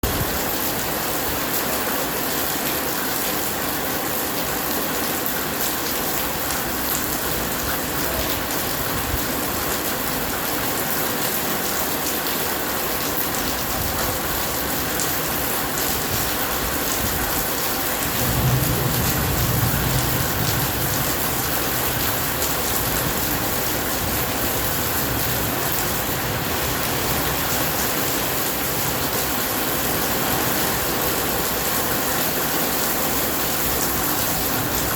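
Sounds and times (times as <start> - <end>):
heavy rain falling: 0.0 - 34.9
low rumble of thunder: 16.1 - 29.2.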